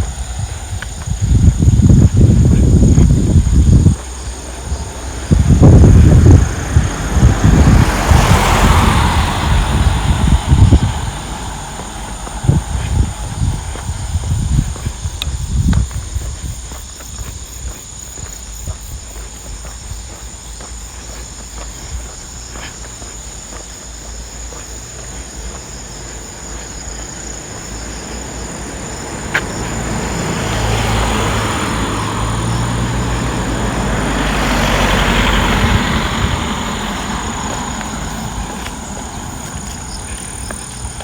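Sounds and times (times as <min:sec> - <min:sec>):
car passing: 0:00.0 - 0:41.0
high insect drone: 0:00.0 - 0:41.0
light footsteps: 0:00.0 - 0:41.0.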